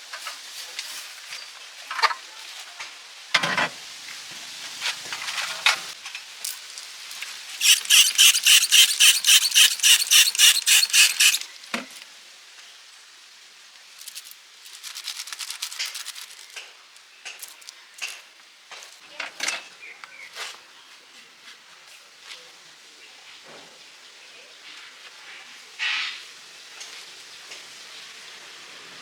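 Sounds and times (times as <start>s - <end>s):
light scratches: 7.6s - 11.4s, 14.0s - 16.6s
rapid scraping strokes: 7.6s - 11.5s, 14.0s - 16.6s.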